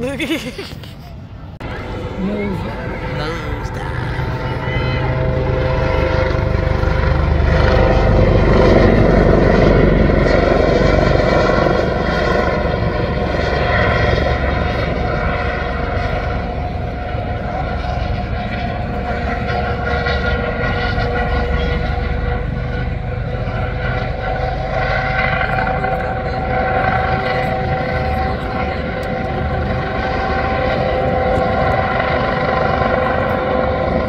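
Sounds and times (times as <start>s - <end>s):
aircraft engines droning: 0.0s - 34.0s
two-tone whine: 1.6s - 34.0s.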